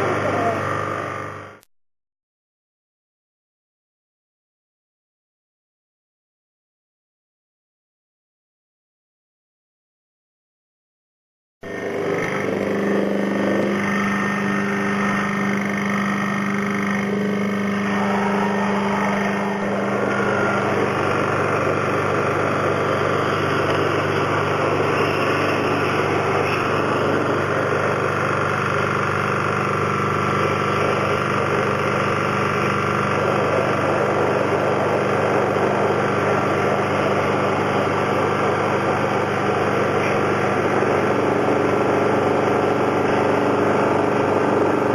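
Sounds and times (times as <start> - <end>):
electric motor humming: 0.0 - 1.6, 11.7 - 44.9.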